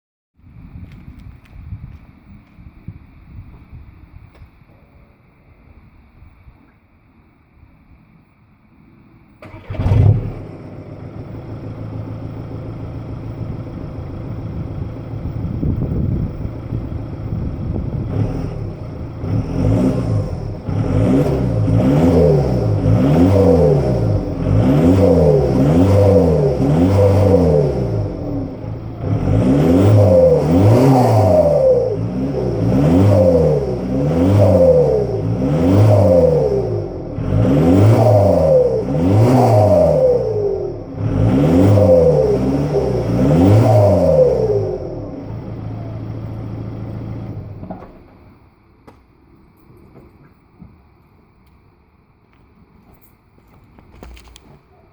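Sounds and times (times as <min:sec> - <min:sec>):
diesel engine starting and revving: 0:09.3 - 0:48.0.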